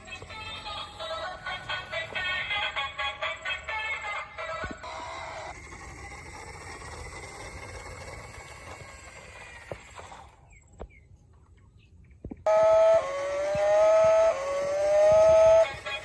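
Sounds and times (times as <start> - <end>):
loud electronic melody: 12.5 - 16.0.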